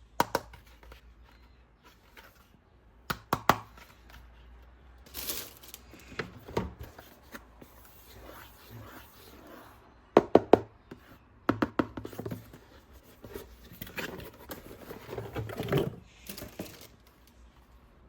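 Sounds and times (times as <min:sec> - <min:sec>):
packaging crinkling: 0:05.1 - 0:06.1.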